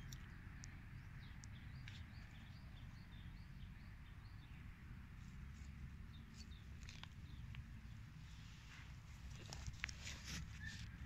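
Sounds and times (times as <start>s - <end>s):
small bird chirping: 0.0s - 4.6s.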